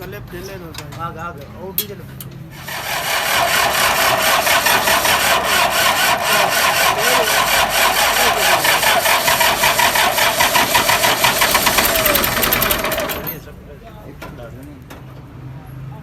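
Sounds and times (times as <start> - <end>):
diesel tractor engine clattering: 2.3 - 13.6.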